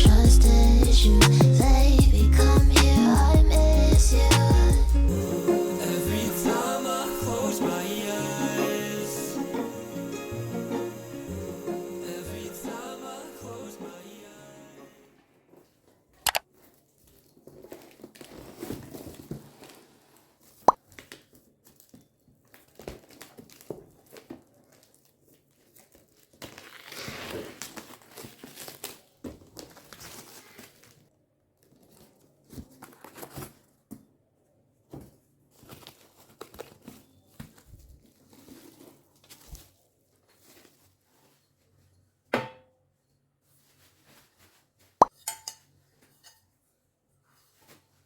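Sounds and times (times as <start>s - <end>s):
packaging crinkling and tearing: 16.4s - 33.8s, 35.5s - 41.0s.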